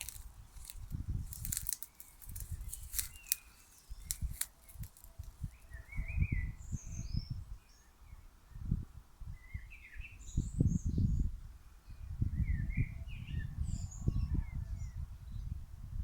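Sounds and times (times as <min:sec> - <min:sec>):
sharp clicks: 0:00.0 - 0:05.5
songbirds chirping: 0:00.0 - 0:15.5.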